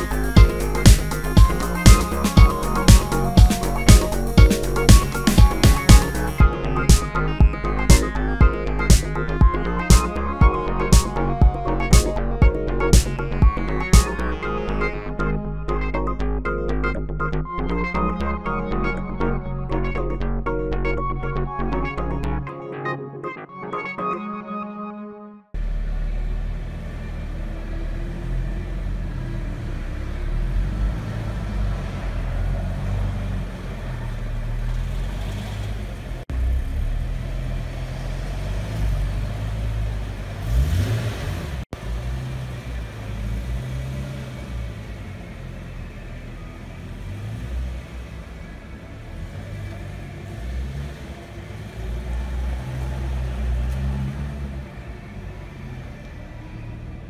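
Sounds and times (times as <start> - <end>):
car engine idling: 0.0 - 21.6, 25.6 - 57.0
engine revving: 25.6 - 57.0.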